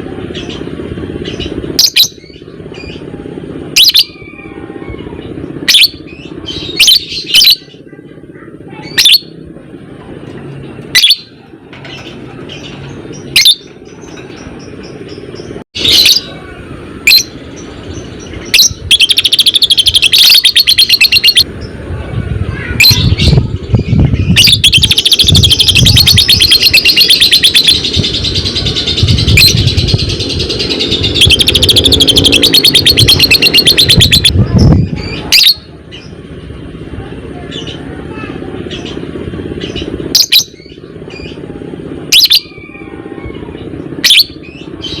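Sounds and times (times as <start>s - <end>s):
bird chattering trills: 0.3s - 3.1s, 3.7s - 9.4s, 10.9s - 21.8s, 22.6s - 36.2s, 37.5s - 41.5s, 42.1s - 45.0s
bird sharp chirps: 17.1s - 21.4s, 22.8s - 34.4s.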